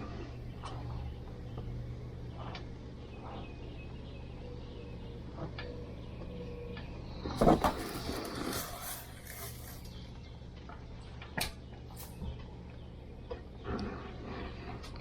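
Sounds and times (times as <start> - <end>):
steady low hum: 0.0 - 15.0
rustling: 7.3 - 10.0.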